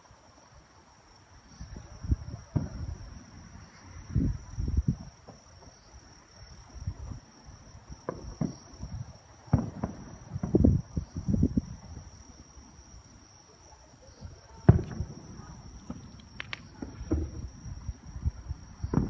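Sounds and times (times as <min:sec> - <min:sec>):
crickets trilling: 0:00.0 - 0:19.0
distant fireworks booms and pops: 0:01.8 - 0:03.6, 0:04.6 - 0:12.4, 0:14.6 - 0:19.0.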